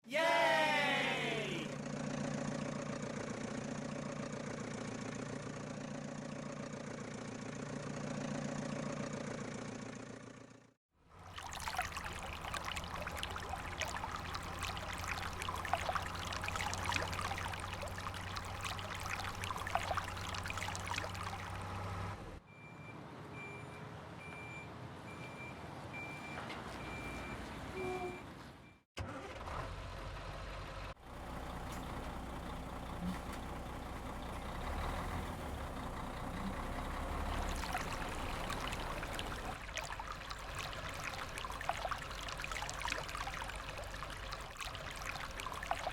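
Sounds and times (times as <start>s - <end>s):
truck engine running: 0.8s - 10.8s, 29.0s - 39.6s
running water: 11.1s - 21.9s, 36.6s - 45.9s.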